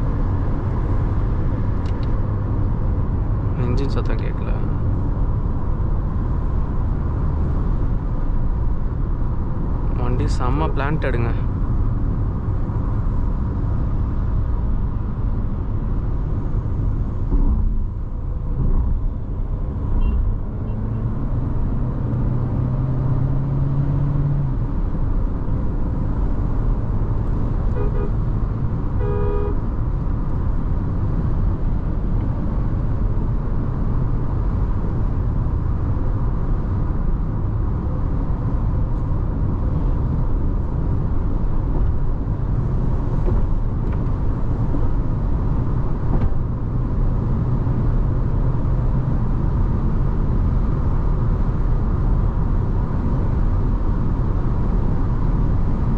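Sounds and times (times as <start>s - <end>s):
road and tyre noise in car: 0.0s - 55.9s
vehicle horn honking: 20.0s - 20.3s, 27.7s - 28.2s, 29.0s - 29.6s.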